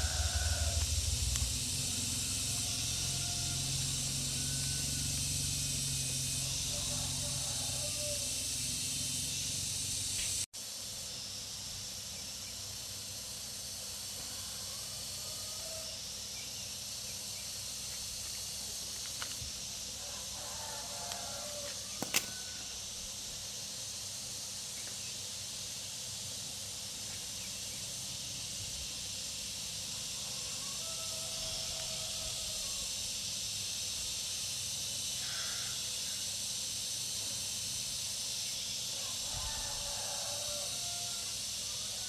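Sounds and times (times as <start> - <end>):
low hum: 0.0 - 7.3
steady hiss: 0.0 - 42.0.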